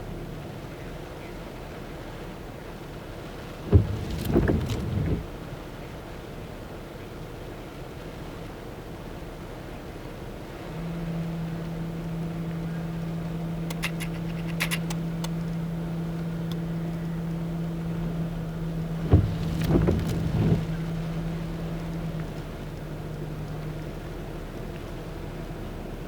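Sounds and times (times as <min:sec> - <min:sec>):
truck cab drone: 0:03.6 - 0:05.5, 0:10.5 - 0:26.0
loud thumps and knocks: 0:03.7 - 0:05.3, 0:19.0 - 0:20.8.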